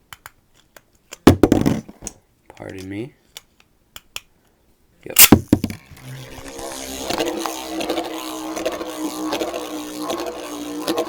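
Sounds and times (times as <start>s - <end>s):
spinning top clicks and scrapes: 5.2s - 11.0s
spinning top whirring: 5.2s - 11.0s.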